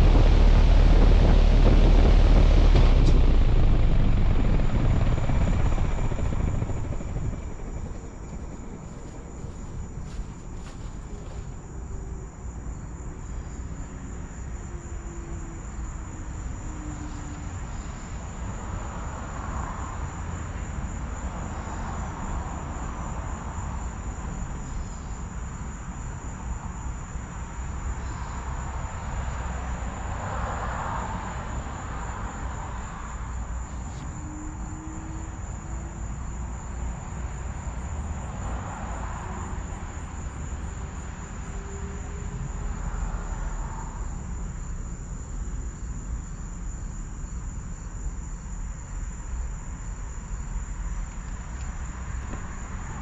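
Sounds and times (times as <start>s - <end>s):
fan rushing: 0.0s - 11.9s.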